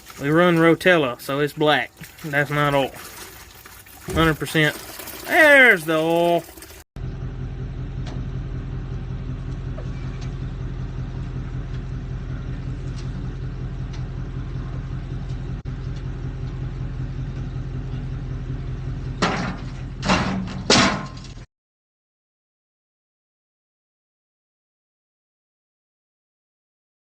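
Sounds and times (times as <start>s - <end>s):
engine idling: 7.0s - 21.4s.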